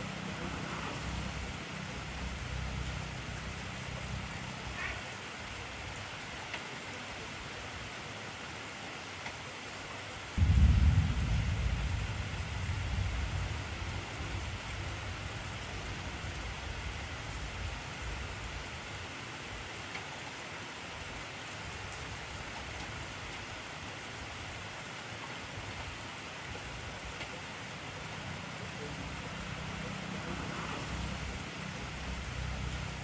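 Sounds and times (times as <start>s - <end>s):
heavy rain falling: 0.0s - 33.0s
thunder rumbling: 10.4s - 18.3s.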